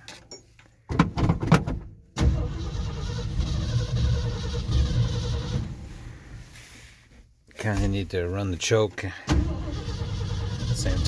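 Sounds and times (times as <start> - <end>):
truck engine cold starting: 2.2 - 6.5, 9.3 - 11.0.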